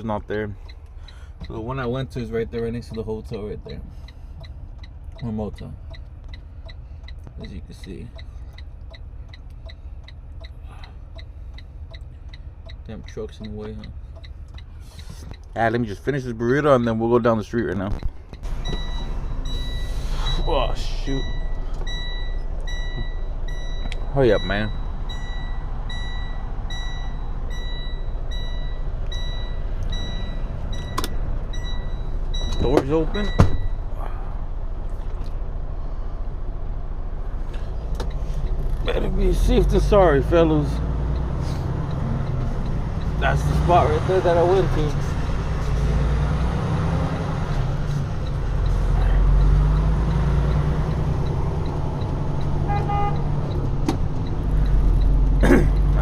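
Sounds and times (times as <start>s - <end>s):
faint regular ticking: 0.0s - 17.0s, 37.6s - 46.8s, 47.4s - 56.0s
car engine and road rumble: 0.0s - 56.0s
vehicle warning beeper: 18.4s - 34.2s, 46.4s - 56.0s.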